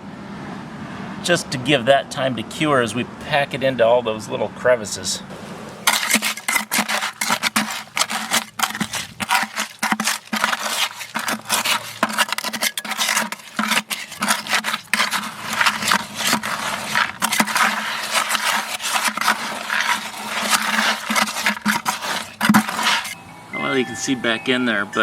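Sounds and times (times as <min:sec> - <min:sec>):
trowel scraping wet concrete: 0:05.8 - 0:23.2.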